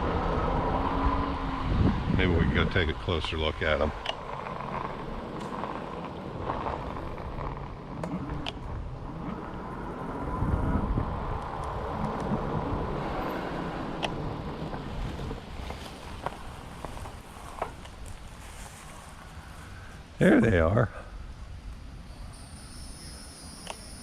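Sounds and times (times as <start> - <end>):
tyre rumble on road: 0.0 - 20.0
wind on microphone: 0.0 - 20.1
bike clicks and knocks: 3.1 - 9.7, 14.0 - 18.5.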